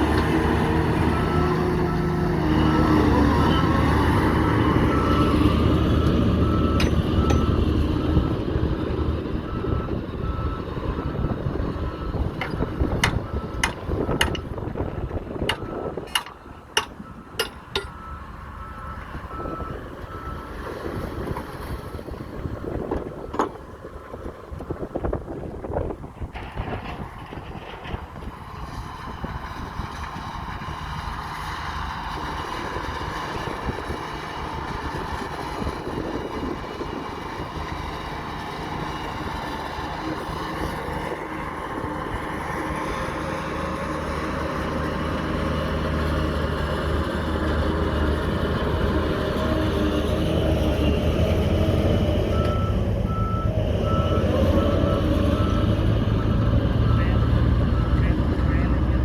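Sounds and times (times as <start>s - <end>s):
heavy diesel engine running: 0.0s - 59.0s
reversing beeper: 1.0s - 8.5s, 17.1s - 20.7s, 52.3s - 58.9s
metal knocks: 15.4s - 18.0s.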